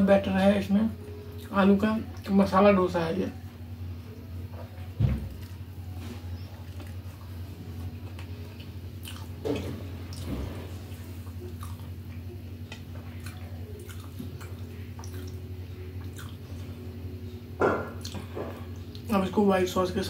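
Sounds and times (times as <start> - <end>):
steady low hum: 0.0 - 20.0
person chewing: 6.4 - 16.6, 18.0 - 19.1.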